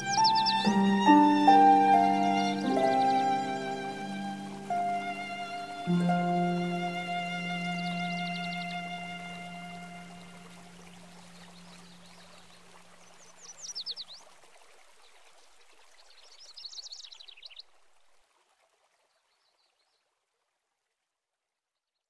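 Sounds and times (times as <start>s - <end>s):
songbird chirping: 0.0s - 14.4s, 15.0s - 17.7s
stream murmuring: 0.0s - 19.3s.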